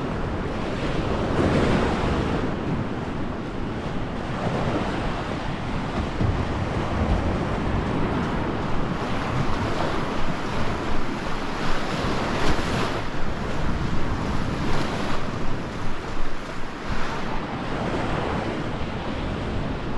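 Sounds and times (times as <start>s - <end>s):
surf breaking on shore: 0.0s - 19.9s
wind buffeting microphone: 0.0s - 19.9s.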